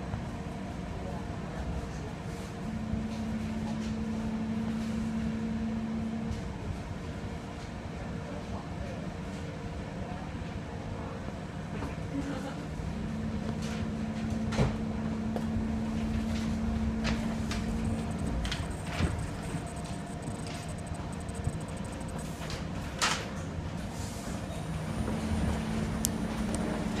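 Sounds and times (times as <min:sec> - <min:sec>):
train rumble inside carriage: 0:00.0 - 0:22.3, 0:23.0 - 0:27.0
low hum: 0:16.3 - 0:22.4.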